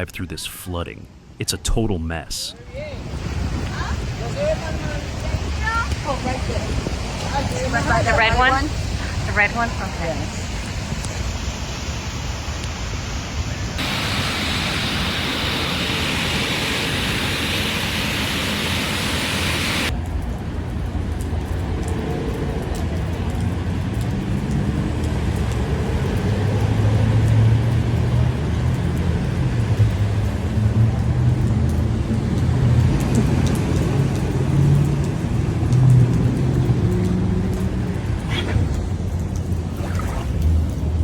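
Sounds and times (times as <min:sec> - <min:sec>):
rushing hiss of water: 0:02.9 - 0:19.9.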